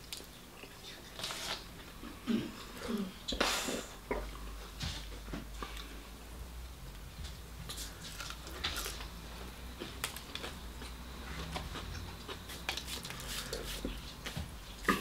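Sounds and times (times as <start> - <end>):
person chewing with clicks and smacks: 7.6 - 15.0.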